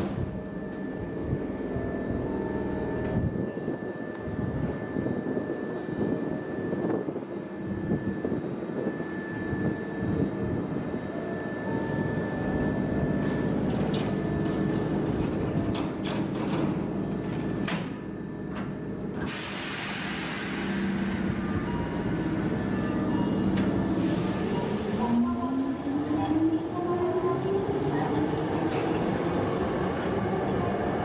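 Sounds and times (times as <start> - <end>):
train doors sliding shut: 0.0 - 1.5, 12.6 - 31.0
train equipment humming: 0.0 - 31.0
air brakes hissing: 13.2 - 14.3, 19.2 - 23.1, 23.8 - 25.2.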